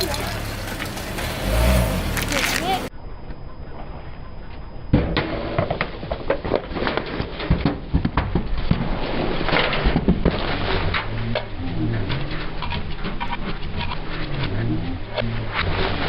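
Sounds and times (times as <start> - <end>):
low engine rumble: 0.0 - 5.0, 10.0 - 16.0.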